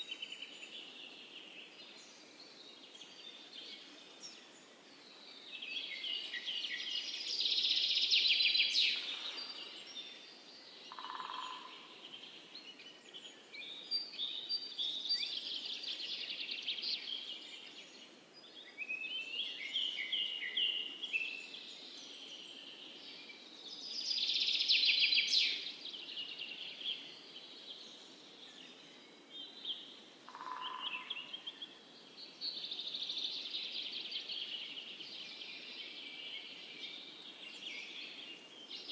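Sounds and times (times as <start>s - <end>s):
faint background hiss: 0.0s - 38.9s.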